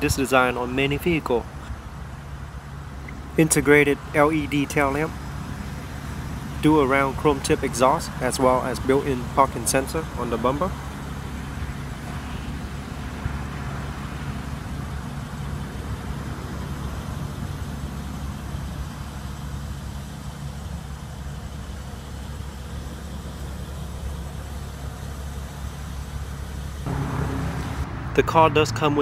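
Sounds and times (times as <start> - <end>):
vehicle engine idling: 0.0 - 29.0.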